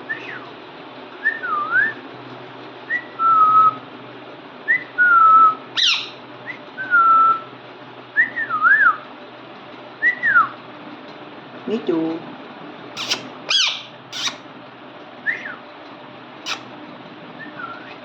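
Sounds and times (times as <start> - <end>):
parrot whistling: 4.7 - 7.4, 13.0 - 14.4, 16.4 - 16.6.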